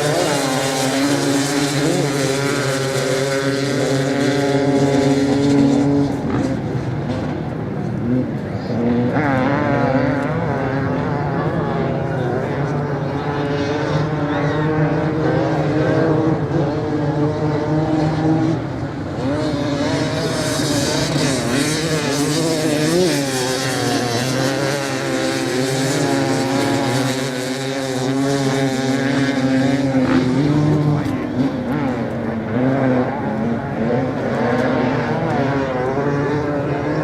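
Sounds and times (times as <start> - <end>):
motorcycle engines revving: 0.0 - 37.0.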